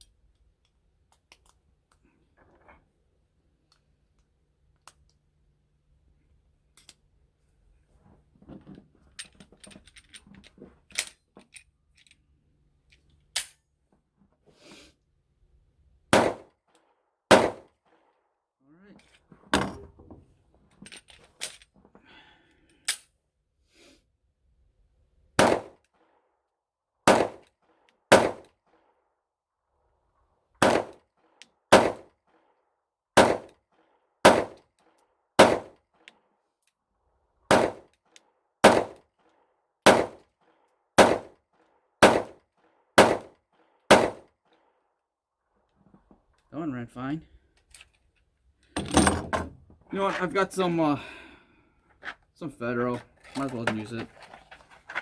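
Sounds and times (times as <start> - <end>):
pistol shots: 16.1 - 16.5, 17.3 - 17.7, 25.4 - 25.8, 27.1 - 27.5, 28.1 - 28.5, 30.6 - 31.0, 31.7 - 32.1, 33.2 - 33.5, 34.2 - 34.6, 35.4 - 35.8, 37.5 - 37.9, 38.6 - 39.0, 39.8 - 40.2, 41.0 - 41.4, 42.0 - 42.4, 43.0 - 43.3, 43.9 - 44.3.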